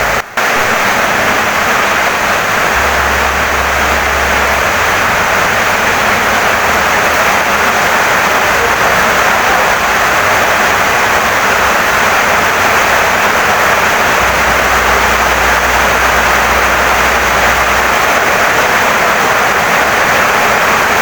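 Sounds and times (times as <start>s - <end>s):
low rumble: 0.0s - 19.4s
heavy rain on wooden house: 0.0s - 21.0s.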